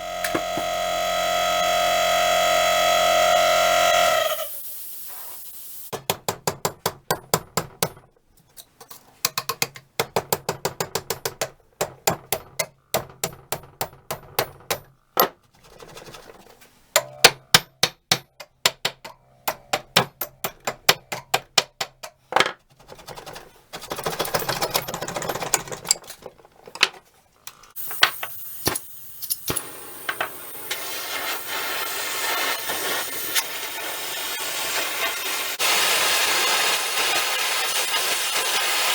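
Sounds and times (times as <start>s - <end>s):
hammer tapping metal: 5.9s - 8.1s, 9.2s - 15.4s, 17.0s - 22.3s
scraping and rubbing: 15.4s - 16.9s, 22.2s - 27.7s.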